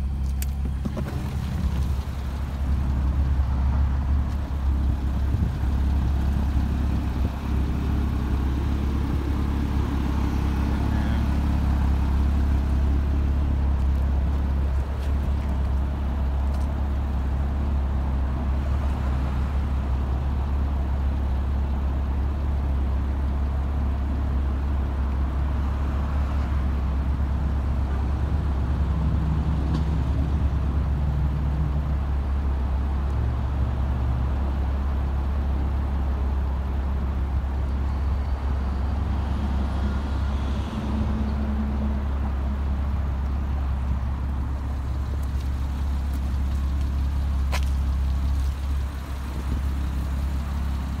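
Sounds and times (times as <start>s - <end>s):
car engine idling: 0.0s - 18.7s, 42.0s - 51.0s.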